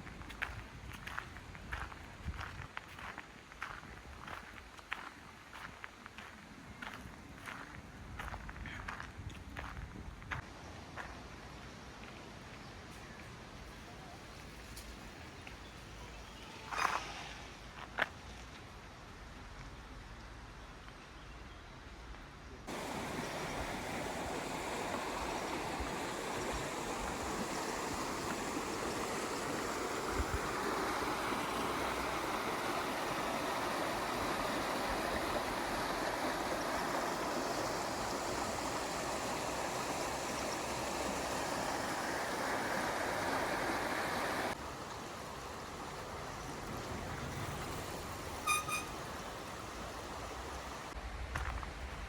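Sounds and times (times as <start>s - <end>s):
outdoor ambience: 0.0s - 52.0s
rushing flowing water: 22.7s - 51.0s
brief chirp: 48.4s - 49.0s.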